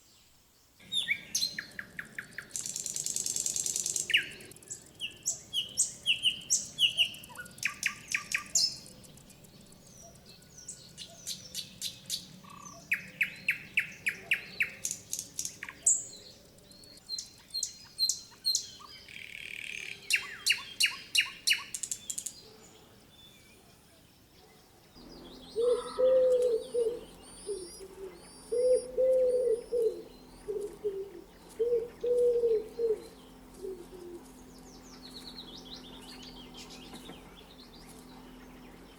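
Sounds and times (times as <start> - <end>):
birds chirping and trilling: 0.0 - 38.9
lower repeated bird call: 25.0 - 37.4.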